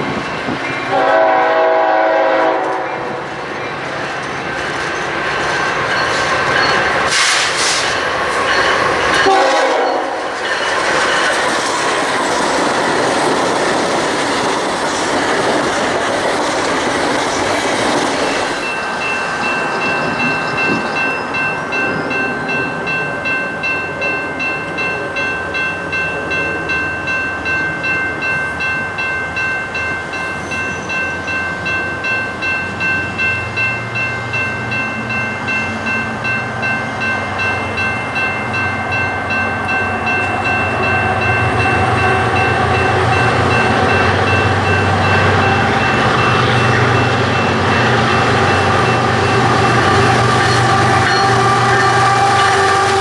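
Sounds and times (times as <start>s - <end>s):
train cars clattering: 0.0s - 53.0s
train wheel and rail noise: 0.0s - 53.0s
steady high-pitched ringing: 18.2s - 52.6s.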